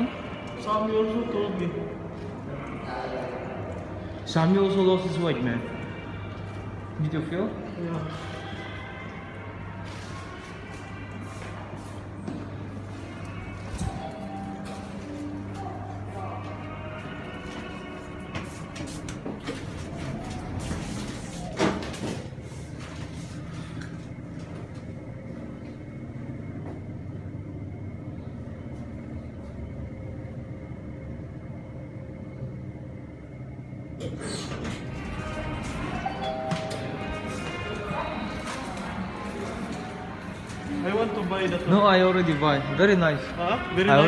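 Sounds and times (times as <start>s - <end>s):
background music: 0.0s - 20.6s, 34.6s - 44.0s
crowd murmur: 0.0s - 21.8s, 34.5s - 44.0s.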